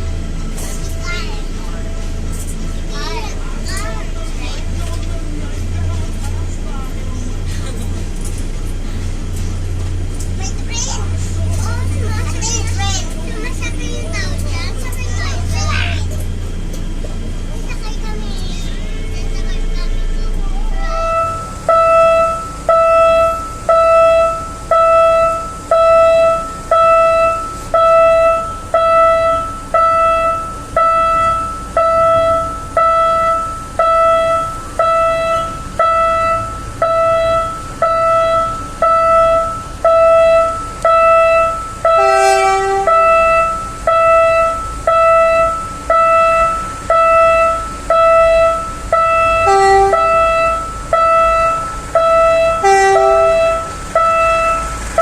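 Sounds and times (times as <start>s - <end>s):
level-crossing warning bell ringing: 0.0s - 55.0s
short horn toots: 42.0s - 43.4s, 52.4s - 54.7s.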